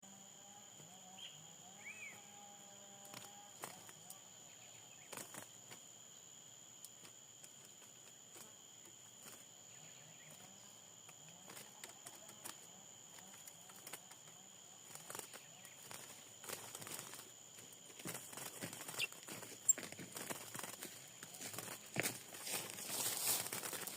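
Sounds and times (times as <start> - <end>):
high insect-like buzz: 0.0 - 23.9
faint bird chirps: 1.1 - 2.4, 3.2 - 5.5, 8.8 - 17.3, 18.2 - 21.4.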